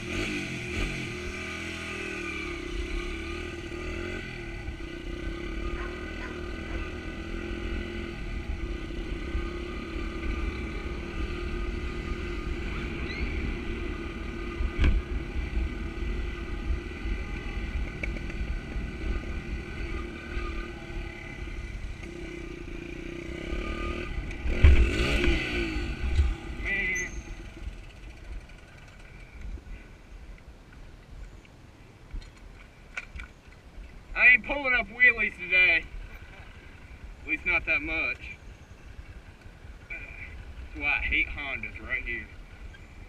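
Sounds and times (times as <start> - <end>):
pit bike engine running: 0.0 - 29.7.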